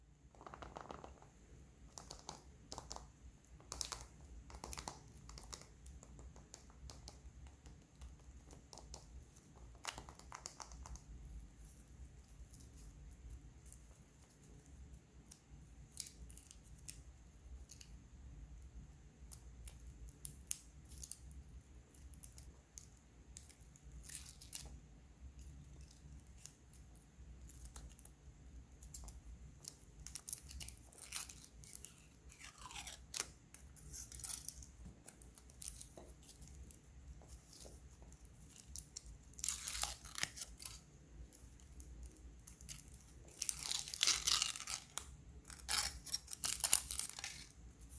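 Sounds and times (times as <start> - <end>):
plastic eggs clicking and cracking: 0.2 - 11.4.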